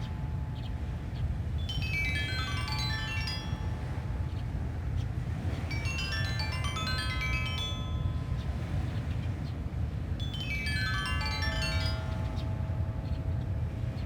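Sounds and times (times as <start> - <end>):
stone xylophone runs: 1.6 - 4.7, 5.7 - 8.7, 10.2 - 14.0.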